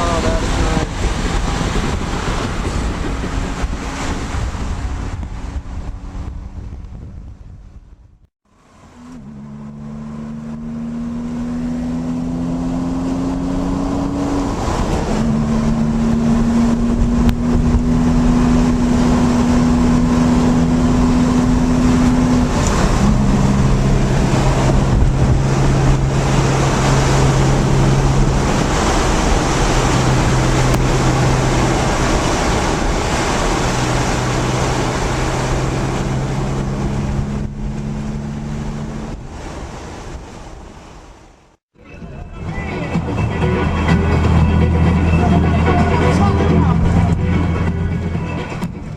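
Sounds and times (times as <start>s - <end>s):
car engine at speed: 0.0s - 41.3s, 42.9s - 48.9s
wind and road noise: 0.0s - 48.9s.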